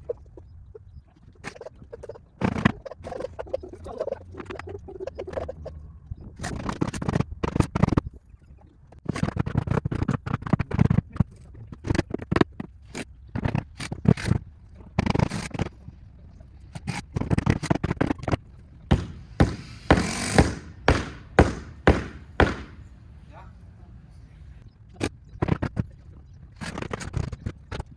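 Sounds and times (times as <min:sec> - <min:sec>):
tools knocking on wooden boards: 0:18.9 - 0:22.9.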